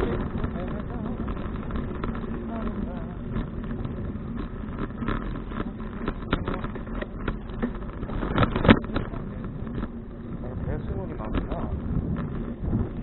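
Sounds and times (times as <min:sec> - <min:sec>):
bicycle rattling knocks: 0:00.0 - 0:13.0
bicycle rolling on road: 0:00.0 - 0:13.0.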